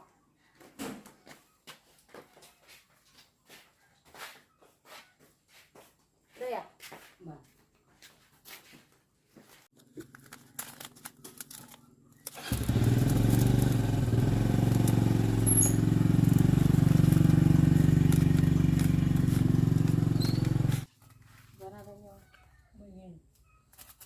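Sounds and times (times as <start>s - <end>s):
motorcycle engine running: 12.4s - 21.9s.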